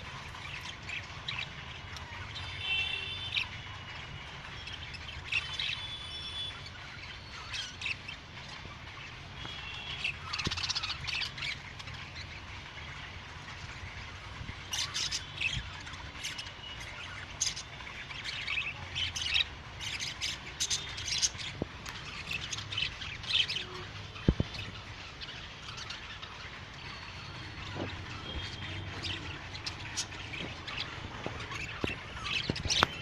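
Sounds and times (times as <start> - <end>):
budgerigars chirping: 4.4 - 14.0, 14.6 - 33.0.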